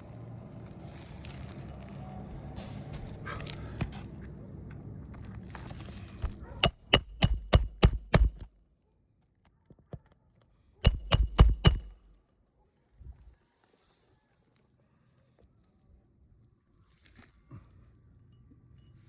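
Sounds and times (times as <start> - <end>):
hammer striking roofing nails: 6.6 - 8.5, 10.8 - 12.1.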